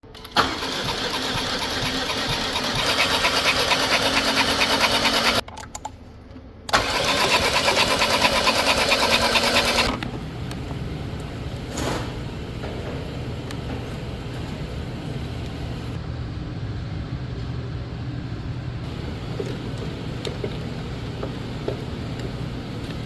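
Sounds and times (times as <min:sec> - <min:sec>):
engine cranking without starting: 0:00.1 - 0:05.4, 0:06.7 - 0:10.0.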